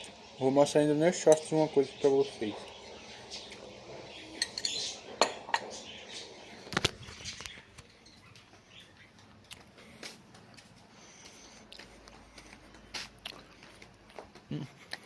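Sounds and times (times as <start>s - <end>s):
cutlery clinking against dish: 4.4s - 5.9s.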